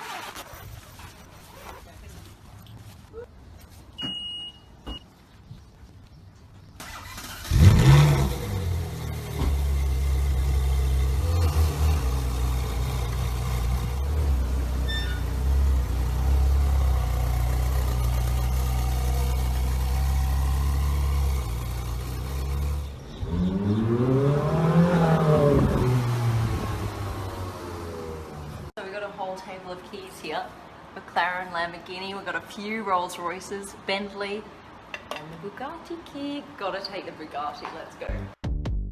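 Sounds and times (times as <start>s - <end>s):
car engine starting and idling: 6.8s - 28.8s
car engine revving: 6.9s - 28.7s.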